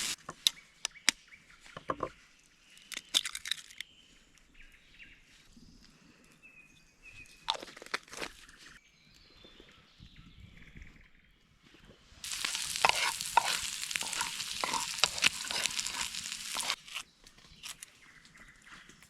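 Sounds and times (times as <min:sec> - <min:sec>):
food sizzling in a pan: 0:12.2 - 0:17.0
popping in pan: 0:12.2 - 0:17.0.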